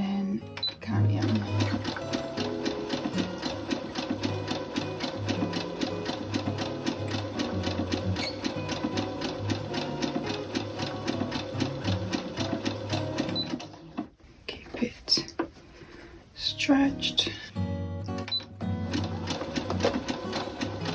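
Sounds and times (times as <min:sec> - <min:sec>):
sewing machine stitching: 0:00.6 - 0:14.1, 0:18.3 - 0:20.9.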